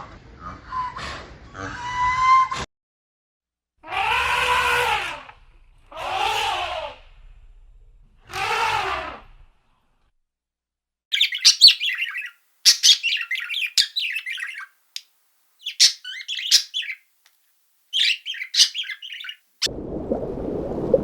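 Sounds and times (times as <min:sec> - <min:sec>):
small bird twittering: 0:11.1 - 0:17.1, 0:17.9 - 0:19.5.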